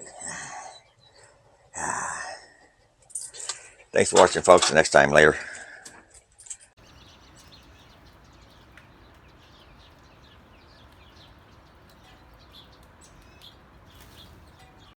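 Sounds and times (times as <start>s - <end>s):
birds chirping: 6.8s - 15.0s.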